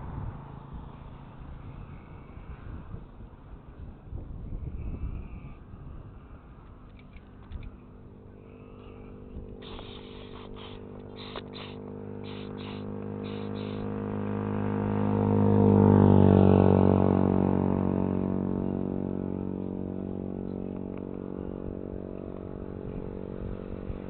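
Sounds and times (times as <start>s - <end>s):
vehicle engine drone: 0.0s - 24.0s
short high chirps: 9.6s - 13.9s.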